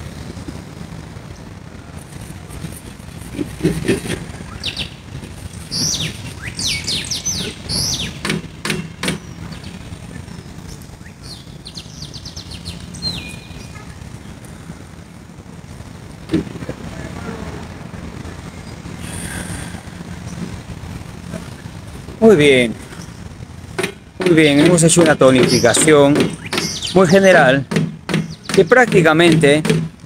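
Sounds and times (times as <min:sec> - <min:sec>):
steady low hum: 0:00.0 - 0:30.0
birds chirping: 0:01.2 - 0:15.8, 0:16.8 - 0:30.0
bird trill: 0:04.4 - 0:05.0, 0:05.6 - 0:14.0, 0:24.4 - 0:27.5, 0:28.1 - 0:29.0.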